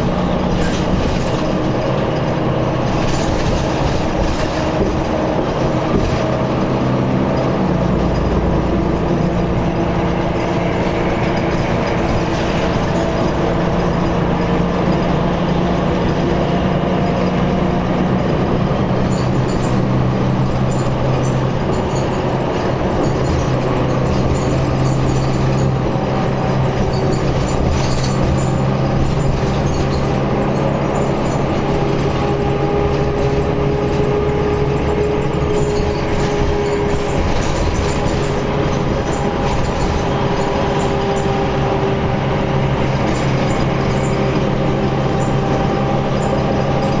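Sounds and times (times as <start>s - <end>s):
vehicle engine humming: 0.0s - 47.0s.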